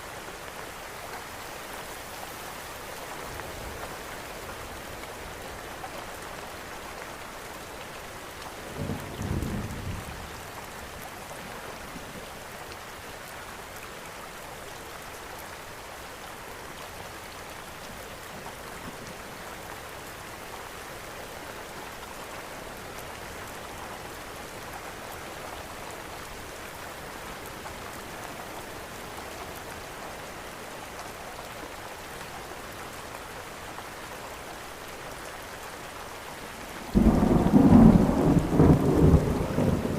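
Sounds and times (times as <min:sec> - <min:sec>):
steady rain: 0:00.0 - 0:39.9
low roll of thunder: 0:37.0 - 0:39.9.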